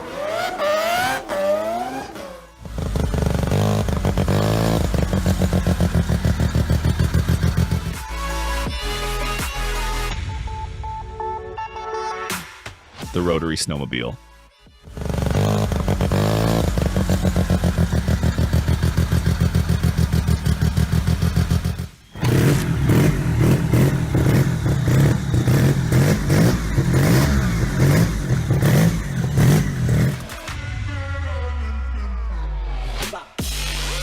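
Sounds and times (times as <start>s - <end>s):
snowmobile engine running: 2.6s - 8.0s, 14.9s - 30.4s.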